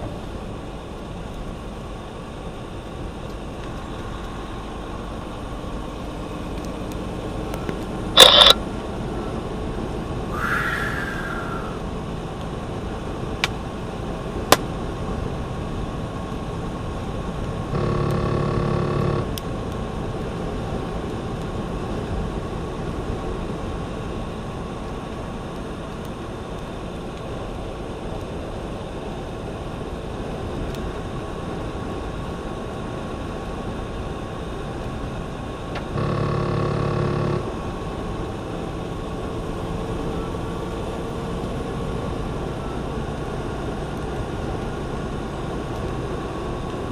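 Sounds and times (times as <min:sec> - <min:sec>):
truck cabin and road noise: 0:00.0 - 0:46.9
sharp clicks: 0:07.8 - 0:08.6.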